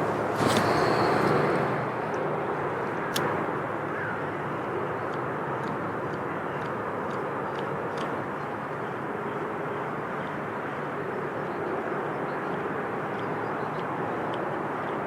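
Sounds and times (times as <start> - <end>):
outdoor rumble: 0.0 - 8.3.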